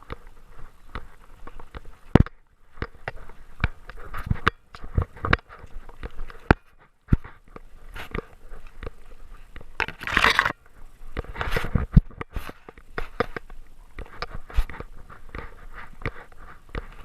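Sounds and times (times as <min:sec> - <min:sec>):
camera mount knocking and scraping: 0:09.8 - 0:10.5.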